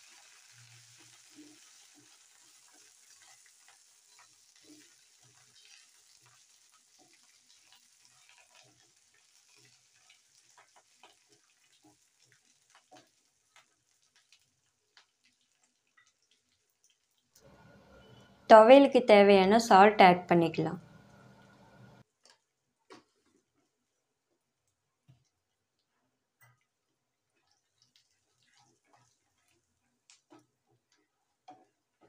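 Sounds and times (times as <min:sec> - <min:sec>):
food sizzling in oil: 0:00.0 - 0:18.1
spatula scraping and tapping pan: 0:00.9 - 0:14.4.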